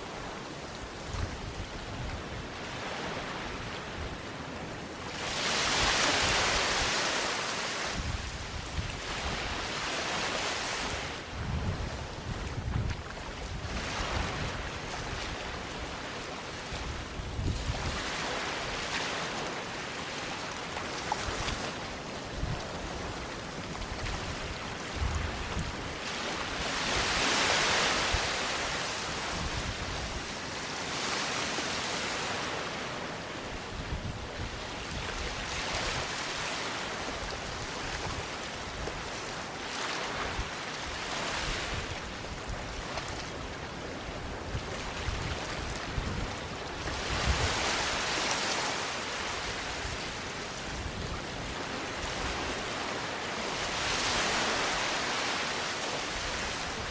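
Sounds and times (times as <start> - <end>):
waves breaking on sandy beach: 0.0 - 56.9.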